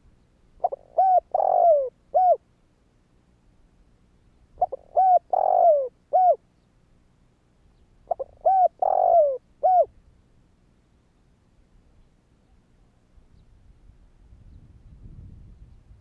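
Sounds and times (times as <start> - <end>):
dove cooing: 0.6 - 2.4, 4.6 - 6.4, 8.1 - 9.9.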